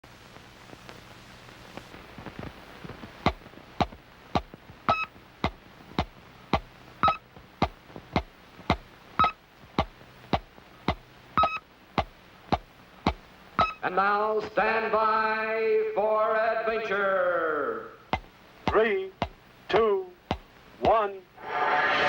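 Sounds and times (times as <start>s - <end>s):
old film soundtrack hum and hiss: 0.0s - 22.0s
electronic ticking clicks: 3.2s - 13.8s
short high beep: 13.6s - 13.8s.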